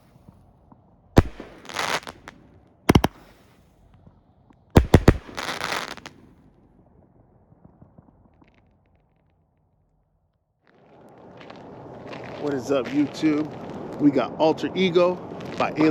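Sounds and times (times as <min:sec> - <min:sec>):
firework bangs: 0:01.2 - 0:02.3, 0:02.9 - 0:03.4, 0:04.8 - 0:06.1
firework crackling: 0:01.2 - 0:02.3, 0:02.9 - 0:03.4, 0:04.8 - 0:06.1.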